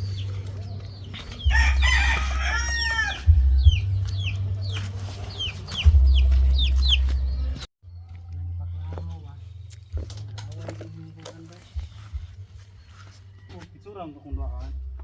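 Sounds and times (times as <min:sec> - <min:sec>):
rooster crowing: 0:01.4 - 0:03.6.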